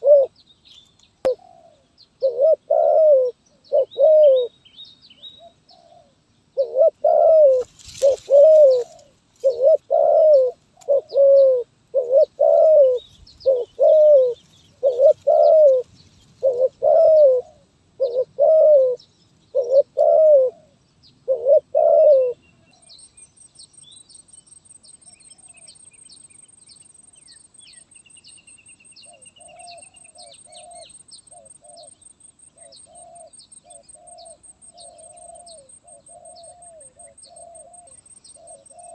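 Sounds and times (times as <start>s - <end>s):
dove cooing: 0.0s - 0.4s, 1.2s - 4.5s, 5.4s - 22.8s, 29.1s - 32.0s, 32.6s - 38.9s
small birds chirping: 0.0s - 38.9s.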